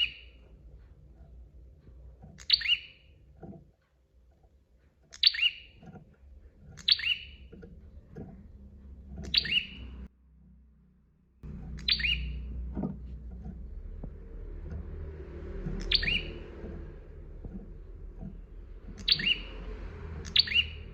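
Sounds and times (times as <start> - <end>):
low background rumble: 0.0 - 20.9
bird giving falling chirp: 9.3 - 9.8, 11.8 - 12.4, 15.8 - 16.4, 19.0 - 19.5, 20.2 - 20.8.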